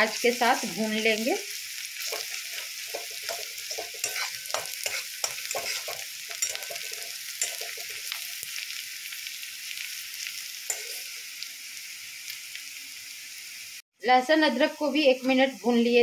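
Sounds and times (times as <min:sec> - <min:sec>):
onion sizzling in hot oil: 0:00.0 - 0:16.0
metal spatula scraping a pan: 0:01.9 - 0:08.6, 0:10.6 - 0:11.3.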